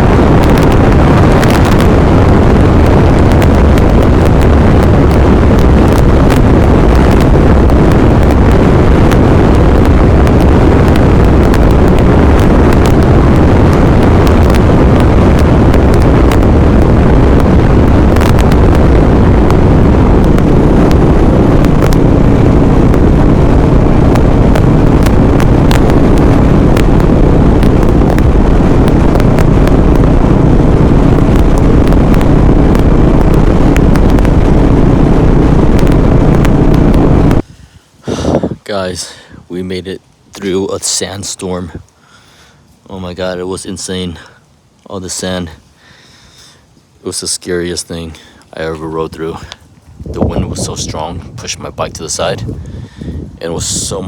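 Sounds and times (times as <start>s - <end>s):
motorcycle engine running: 0.0s - 37.4s
wind rushing over microphone: 0.0s - 42.0s, 42.6s - 54.0s.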